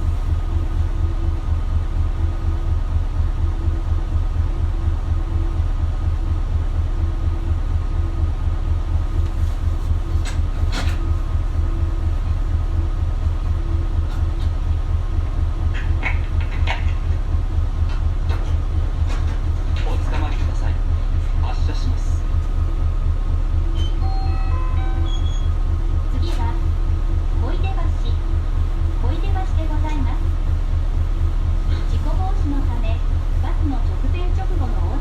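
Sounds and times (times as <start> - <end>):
bus engine idling: 0.0 - 35.0
soft beeps: 23.8 - 25.6.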